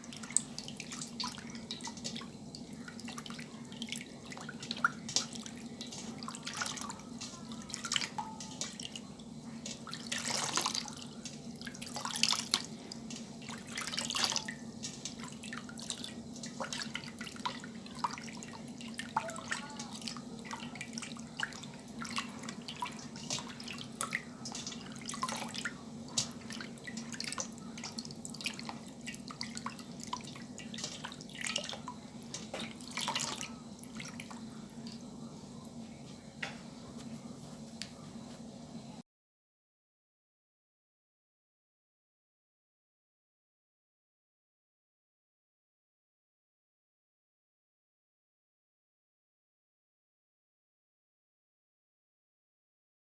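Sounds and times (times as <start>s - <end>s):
water dripping and splashing: 0.0s - 35.8s.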